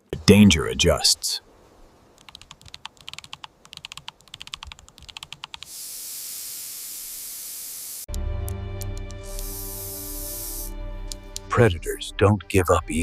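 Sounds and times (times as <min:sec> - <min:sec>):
steady high hiss: 0:00.0 - 0:08.1, 0:09.2 - 0:12.0
rapid irregular clicking: 0:02.2 - 0:05.7.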